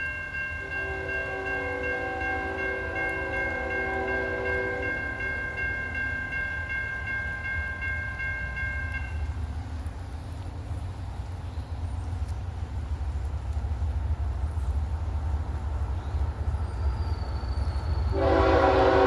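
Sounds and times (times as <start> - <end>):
locomotive air horn: 0.6 - 5.5, 18.1 - 19.0.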